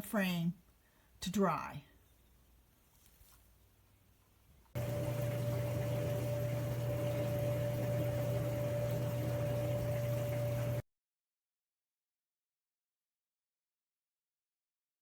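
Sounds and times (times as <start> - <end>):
machine hum: 4.8 - 10.8
steady whine: 4.8 - 10.8.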